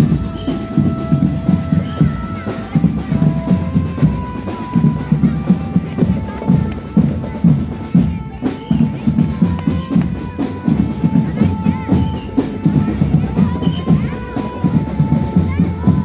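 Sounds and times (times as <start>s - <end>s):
held melody notes: 0.0s - 16.0s
marching drum band: 0.0s - 16.0s.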